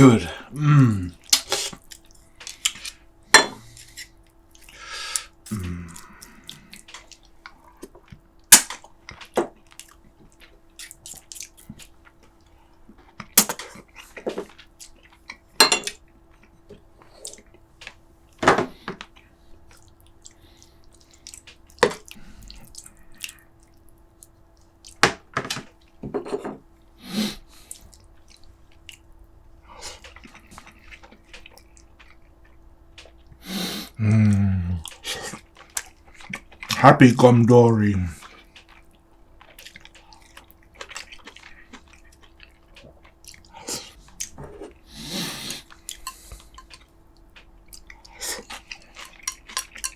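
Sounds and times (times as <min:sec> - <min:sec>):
utensils clinking against dishes: 0:15.6 - 0:16.0, 0:49.0 - 0:49.9.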